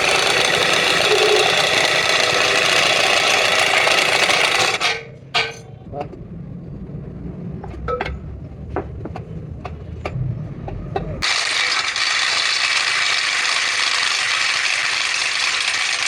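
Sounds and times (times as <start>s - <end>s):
low hum: 5.0s - 11.2s.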